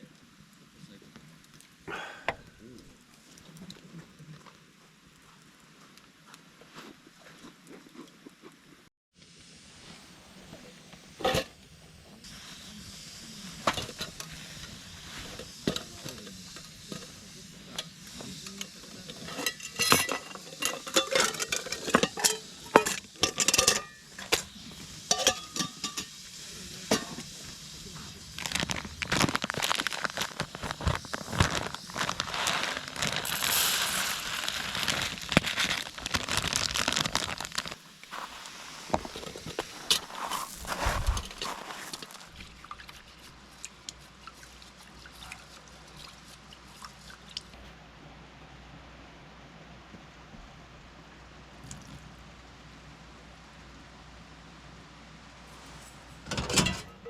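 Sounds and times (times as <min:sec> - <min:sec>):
food sizzling: 0:09.3 - 0:43.3
metal utensils clinking on pan: 0:18.6 - 0:24.5, 0:25.1 - 0:26.2, 0:56.3 - 0:57.0.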